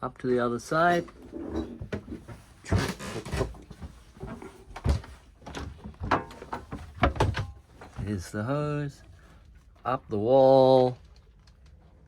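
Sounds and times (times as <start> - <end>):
knocks and bumps: 0.9 - 8.0.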